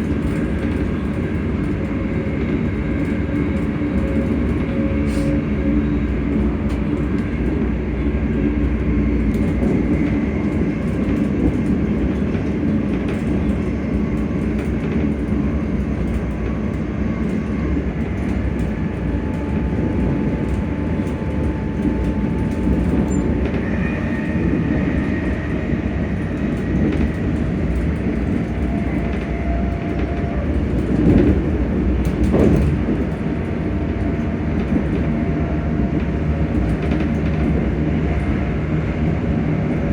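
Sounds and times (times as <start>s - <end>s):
wheels clicking over rail joints: 0.0s - 38.4s
electric train rumble: 0.0s - 39.9s
traction motor whine: 18.0s - 32.8s.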